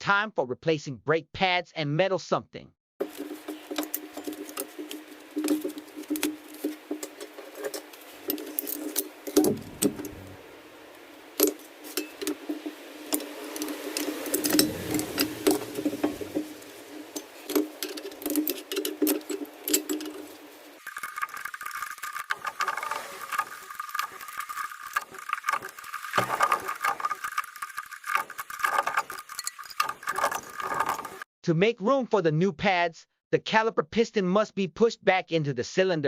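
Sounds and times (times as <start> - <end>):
steady low hum: 9.1 - 12.2.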